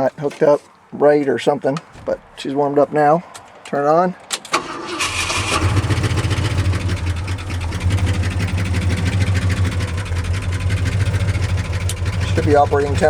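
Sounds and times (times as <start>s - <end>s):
truck engine idling: 4.5s - 13.0s.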